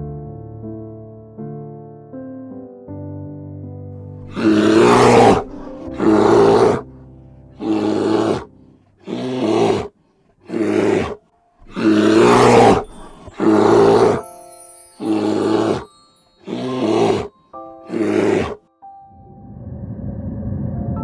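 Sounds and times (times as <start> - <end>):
lion roaring: 4.2 - 6.9, 7.6 - 14.2, 15.0 - 17.3, 17.9 - 18.6.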